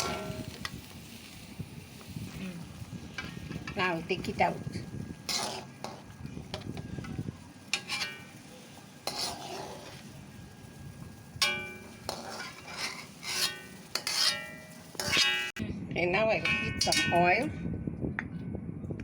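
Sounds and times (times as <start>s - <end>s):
metal utensil scraping pot: 0.0s - 0.6s, 3.2s - 10.1s, 11.4s - 15.6s, 16.4s - 17.5s.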